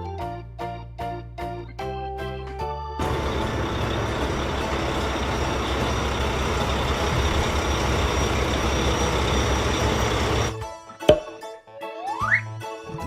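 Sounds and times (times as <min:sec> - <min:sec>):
heavy vehicle engine running: 0:03.0 - 0:10.6.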